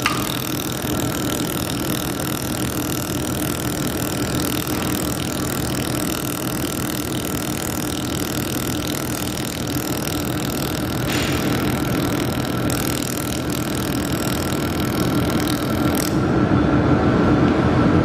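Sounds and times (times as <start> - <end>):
welding machine hum and hiss: 0.0 - 17.3.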